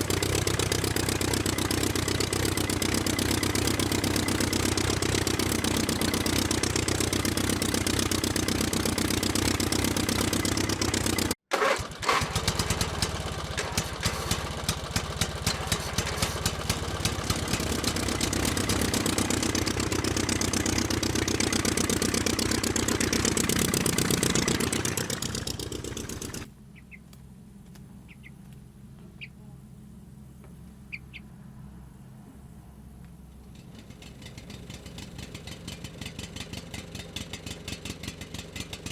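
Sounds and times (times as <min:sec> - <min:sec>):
small motor running: 0:00.0 - 0:26.5.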